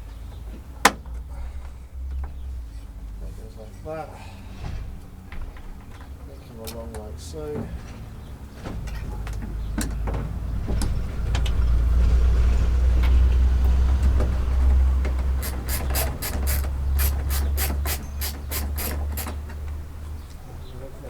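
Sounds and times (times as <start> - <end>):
quick sharp clicks: 15.4 - 19.4.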